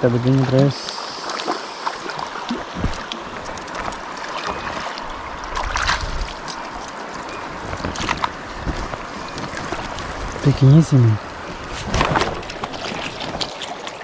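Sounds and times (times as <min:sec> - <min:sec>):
water running and splashing: 0:00.0 - 0:14.0.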